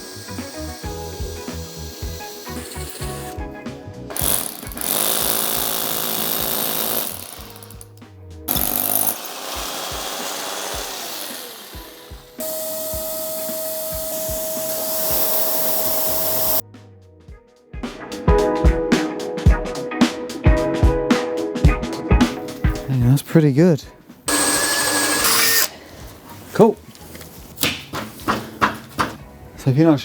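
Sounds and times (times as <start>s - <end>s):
power tool whining: 0.0s - 3.4s, 4.1s - 16.6s, 24.3s - 25.8s
background music with a beat: 0.0s - 23.2s.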